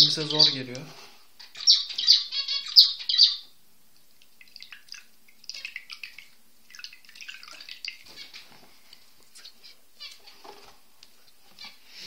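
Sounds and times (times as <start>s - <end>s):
small bird chirping: 0.0s - 3.6s, 4.3s - 8.6s, 9.4s - 10.7s.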